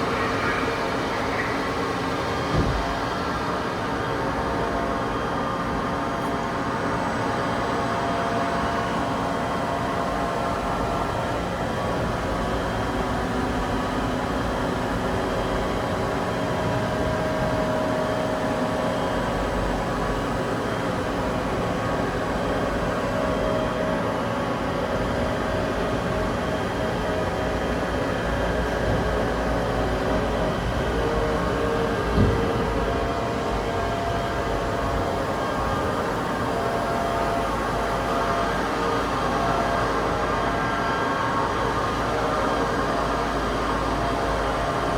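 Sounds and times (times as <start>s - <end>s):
machining center humming: 0.0s - 4.6s.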